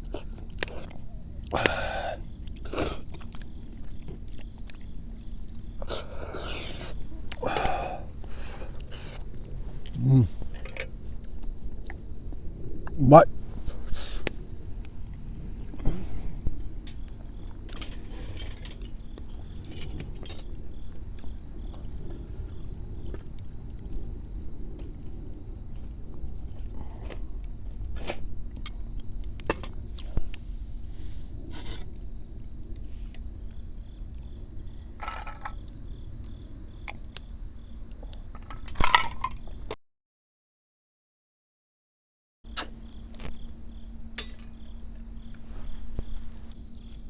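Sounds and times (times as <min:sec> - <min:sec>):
crickets trilling: 0:00.0 - 0:39.8, 0:42.5 - 0:47.0.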